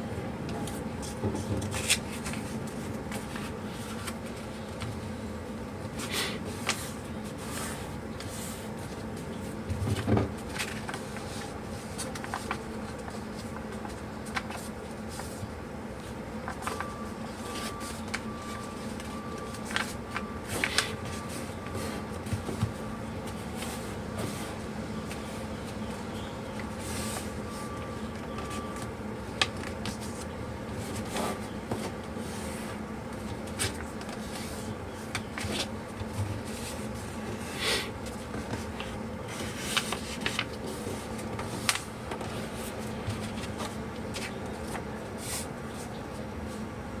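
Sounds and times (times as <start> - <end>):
steady low hum: 0.0 - 47.0
paper rustling: 0.6 - 5.1, 5.8 - 46.6.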